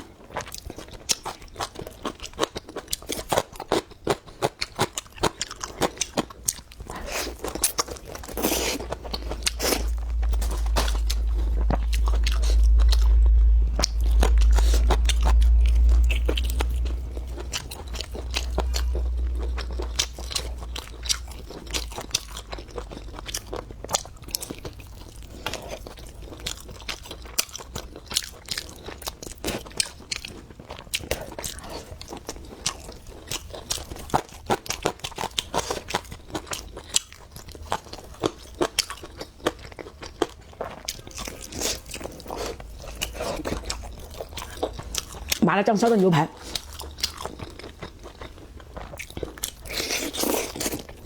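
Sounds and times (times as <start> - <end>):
person chewing crunchy food: 0.0 - 45.4, 46.3 - 51.0
deep low rumble: 7.4 - 27.5, 40.9 - 49.7.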